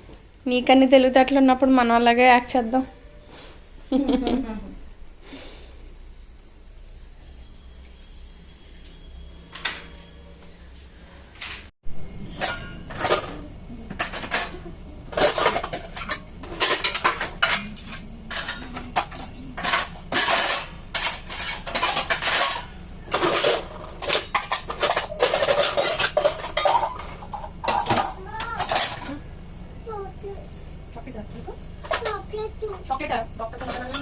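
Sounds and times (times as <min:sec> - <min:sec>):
metal utensils and dishes clattering: 0:11.4 - 0:29.2, 0:31.7 - 0:34.0.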